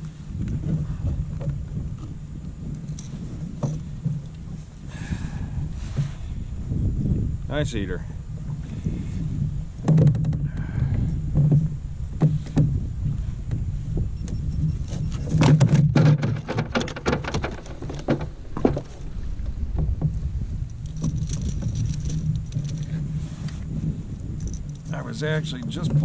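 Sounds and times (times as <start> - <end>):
wind and water rumble: 0.0 - 26.0
gear knocking on plastic kayak: 9.8 - 23.0.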